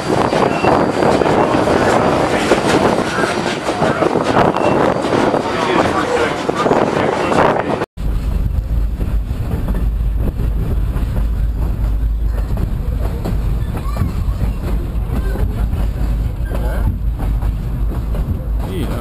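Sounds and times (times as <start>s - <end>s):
train rumbling in motion: 0.0s - 19.0s
faint voices: 11.6s - 17.3s.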